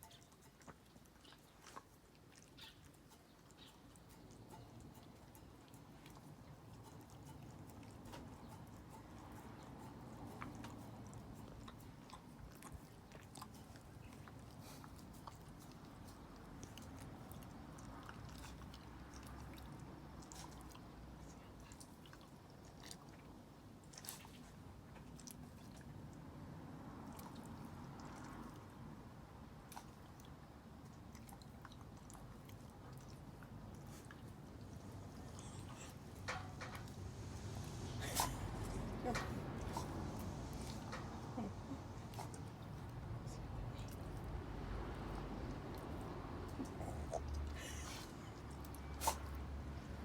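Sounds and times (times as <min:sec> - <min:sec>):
dog lapping soup: 0:00.0 - 0:26.2, 0:29.6 - 0:43.2.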